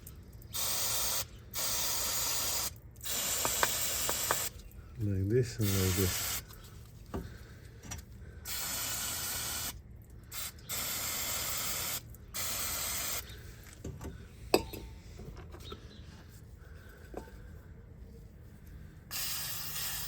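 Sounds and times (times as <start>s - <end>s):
aerosol spray hissing: 0.6s - 4.5s, 5.6s - 6.4s, 8.5s - 9.8s, 10.4s - 13.2s, 19.1s - 20.0s.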